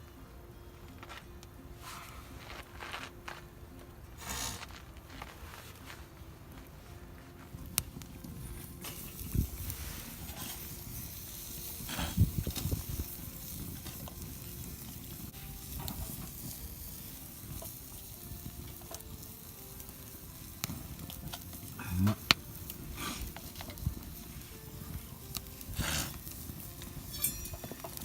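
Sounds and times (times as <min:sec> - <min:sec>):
food sizzling in a pan: 0:08.6 - 0:28.0.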